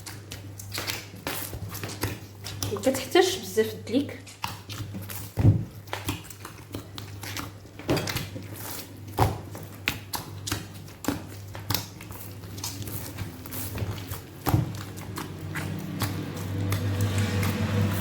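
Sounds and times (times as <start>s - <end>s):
dough slapped by hand: 4.3s - 6.4s, 9.1s - 12.0s, 13.7s - 15.1s.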